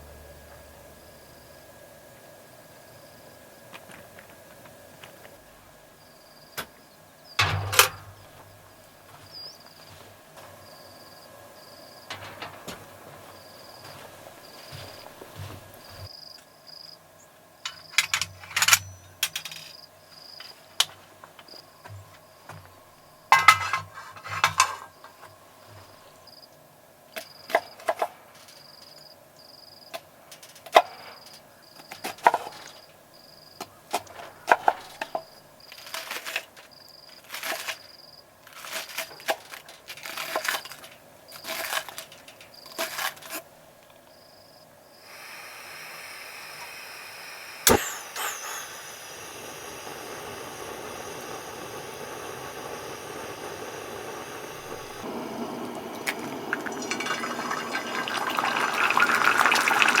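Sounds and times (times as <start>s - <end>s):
steady hiss: 44.6s - 60.0s
sharp click: 47.6s - 49.2s.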